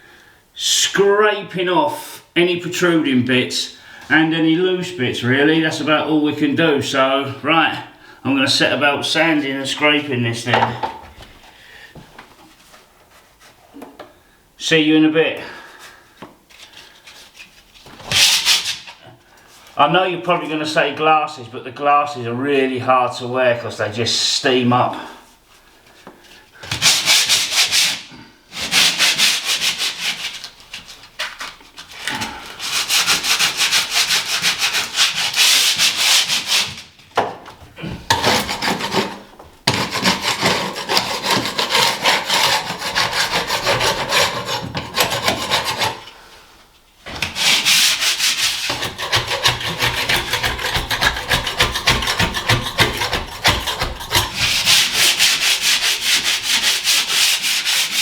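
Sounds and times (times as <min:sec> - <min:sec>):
sandpaper rubbing on ceiling: 0:17.1 - 0:19.0, 0:26.7 - 0:37.0, 0:38.1 - 0:46.1, 0:47.2 - 0:58.0.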